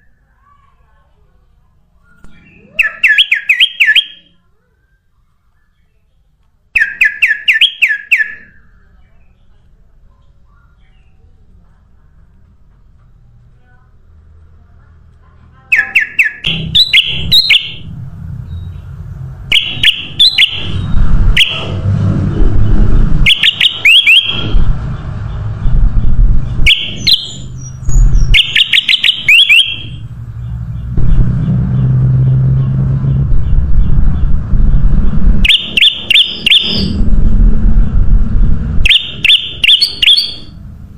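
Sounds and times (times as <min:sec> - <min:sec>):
bird whistled chirps: 0:02.0 - 0:05.0, 0:06.8 - 0:08.6, 0:15.7 - 0:17.8, 0:19.5 - 0:21.6, 0:23.2 - 0:24.5, 0:26.6 - 0:30.0, 0:35.4 - 0:37.0, 0:38.8 - 0:40.5
loud low rumble: 0:16.4 - 0:28.5, 0:29.7 - 0:40.9.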